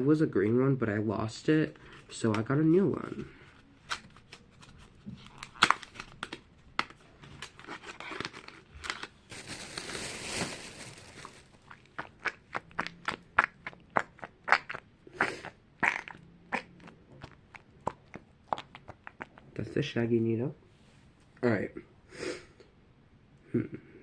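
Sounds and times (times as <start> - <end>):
packaging crinkles and clicks: 3.8 - 12.1
packaging rustle: 3.9 - 11.7.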